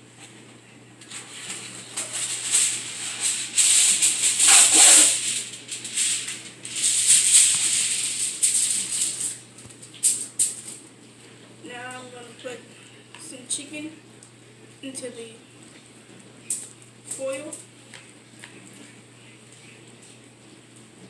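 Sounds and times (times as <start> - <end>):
aluminium foil crinkling: 1.0 - 10.9.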